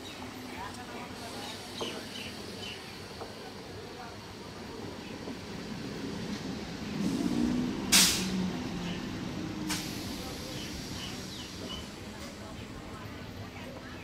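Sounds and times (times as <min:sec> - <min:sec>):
train rolling with low rumble: 0:00.0 - 0:14.0
air brakes hissing: 0:07.0 - 0:08.5, 0:09.6 - 0:11.9.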